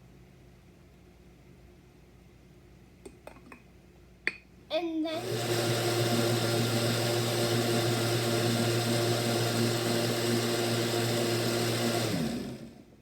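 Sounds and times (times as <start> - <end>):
blender motor winding down: 5.1 - 13.0
blender running: 5.1 - 13.0.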